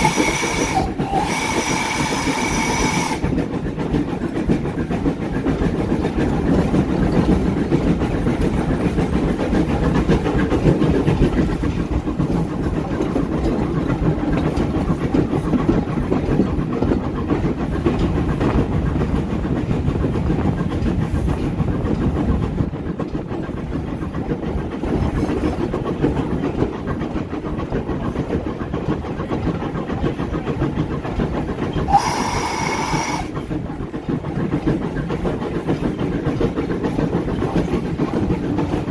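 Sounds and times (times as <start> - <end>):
high train whistle: 0.0 - 3.3, 31.9 - 33.3
train wheels rumbling on rails: 0.0 - 38.9.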